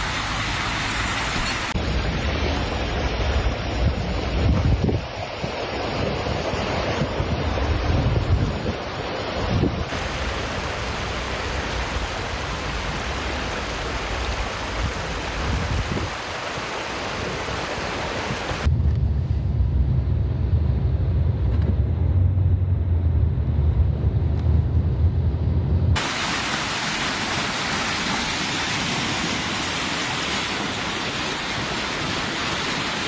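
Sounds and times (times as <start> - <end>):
wind and water rushing: 0.0 - 18.7, 24.4 - 33.0
wind buffeting microphone: 1.2 - 26.0.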